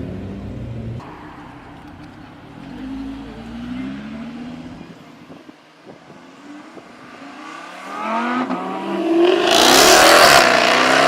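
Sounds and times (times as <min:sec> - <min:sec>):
sports car engine accelerating: 0:00.0 - 0:05.5.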